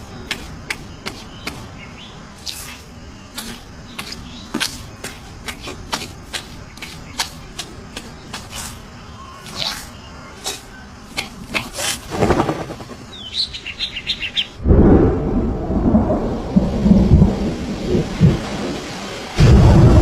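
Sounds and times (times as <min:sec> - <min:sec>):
thunder: 0:12.1 - 0:13.0, 0:14.6 - 0:20.0
rain: 0:14.6 - 0:20.0.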